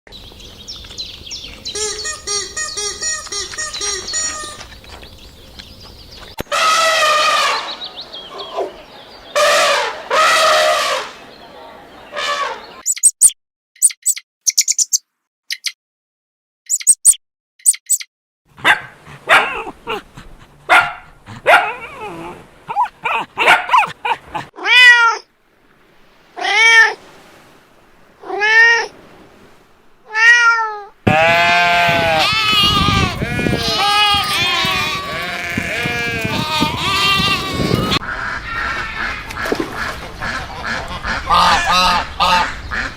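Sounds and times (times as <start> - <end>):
chicken squawking: 1.8 - 4.6, 6.4 - 7.8, 9.4 - 11.2, 18.7 - 25.1, 31.1 - 42.9
faint high peeping: 12.8 - 15.8, 16.7 - 18.1
cat meowing: 24.6 - 25.3, 30.1 - 38.0.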